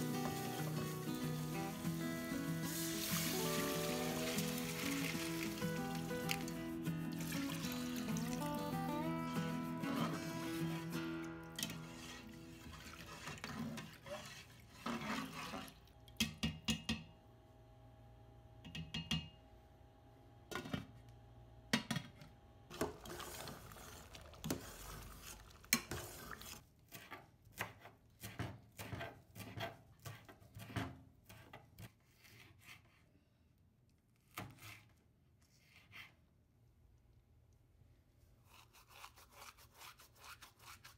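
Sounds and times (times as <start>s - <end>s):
background music: 0.0s - 12.4s.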